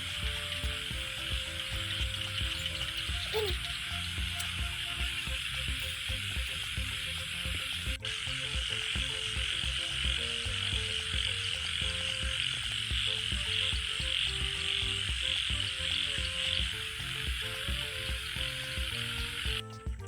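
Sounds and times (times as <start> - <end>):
frogs croaking: 0.0 - 19.6
steady high hiss: 0.0 - 19.6.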